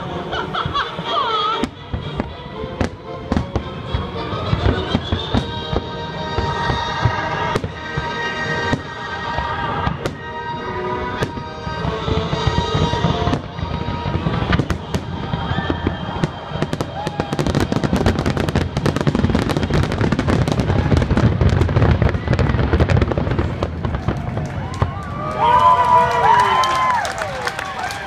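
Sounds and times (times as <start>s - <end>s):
music: 0.0s - 22.1s
fireworks bursting: 0.0s - 27.3s.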